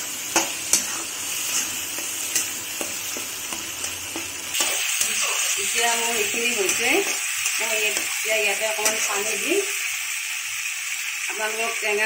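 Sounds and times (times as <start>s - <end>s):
food sizzling in hot oil: 0.0s - 12.0s
metal spatula scraping a pan: 0.3s - 9.4s.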